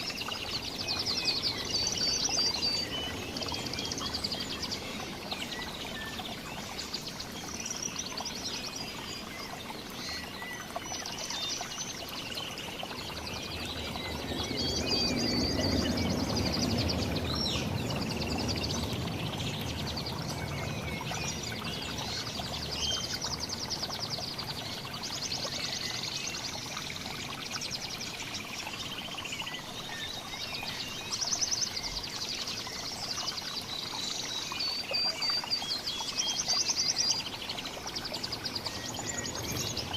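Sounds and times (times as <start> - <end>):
rushing noise of running water: 0.0 - 39.9
songbirds chirping and trilling: 0.0 - 39.9.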